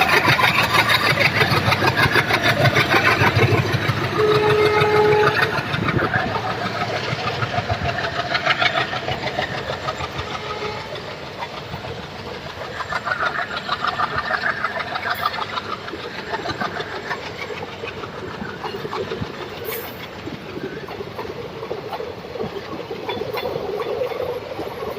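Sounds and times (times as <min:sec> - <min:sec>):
train wheels clattering over rail joints: 0:00.0 - 0:24.9.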